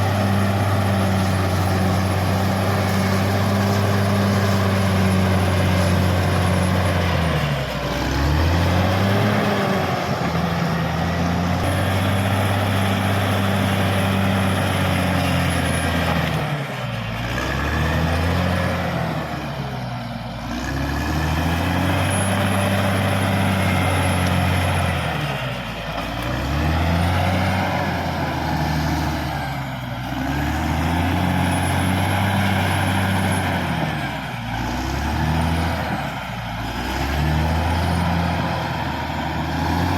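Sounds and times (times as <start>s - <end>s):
bulldozer diesel engine working: 0.0s - 39.9s.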